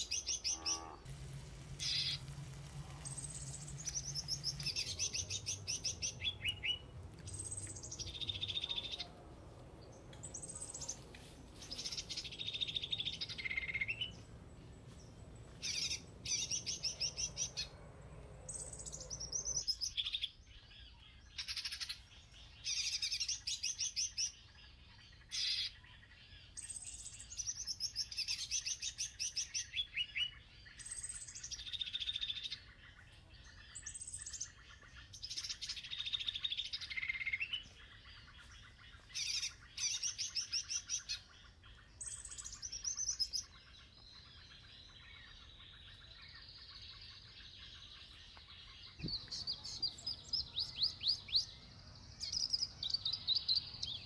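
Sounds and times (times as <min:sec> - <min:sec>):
birds singing trilled phrases: 0:00.0 - 0:24.4, 0:25.1 - 0:54.0
low rumbling noise: 0:00.4 - 0:19.6.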